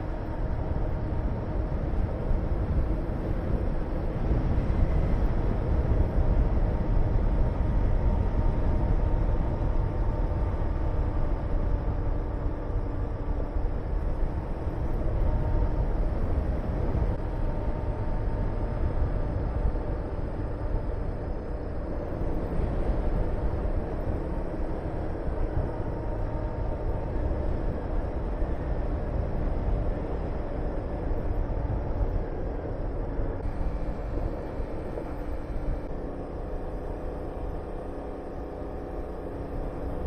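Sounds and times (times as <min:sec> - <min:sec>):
wind rush on microphone: 0:00.0 - 0:40.0.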